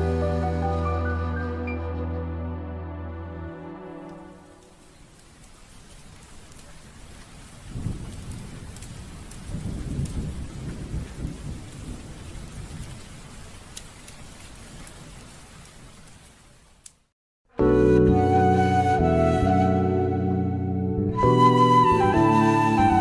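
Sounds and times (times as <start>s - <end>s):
breathy flute melody: 0.0s - 4.6s, 17.5s - 23.0s
rain hissing: 3.6s - 17.1s
thunder rumbling: 6.9s - 15.3s.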